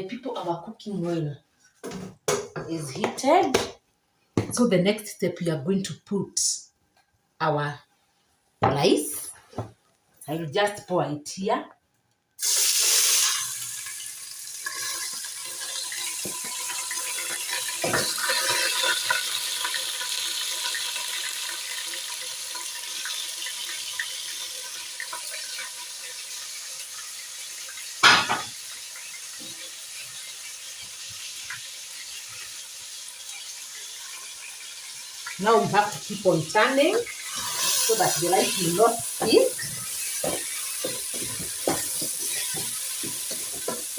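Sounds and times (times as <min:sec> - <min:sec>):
rice pouring into oil: 0:12.4 - 0:26.3
rice sizzling in oil: 0:12.4 - 0:43.9.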